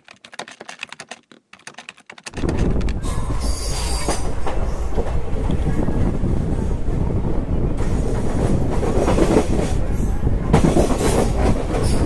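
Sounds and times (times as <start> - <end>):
typewriter typing clicks: 0.0 - 2.8
train wheels rolling over rails: 2.3 - 12.0
high wheel squeal: 3.0 - 4.8.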